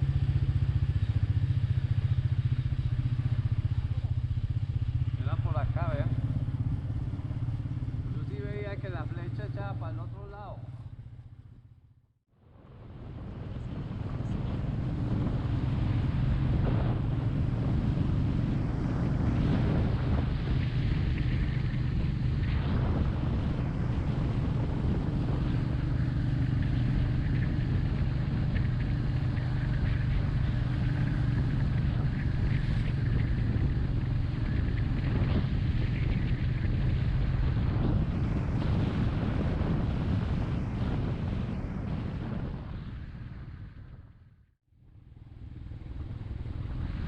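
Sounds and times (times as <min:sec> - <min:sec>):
motorcycle engine cruising: 0:00.0 - 0:47.0
wind buffeting microphone: 0:12.5 - 0:44.2, 0:45.3 - 0:47.0.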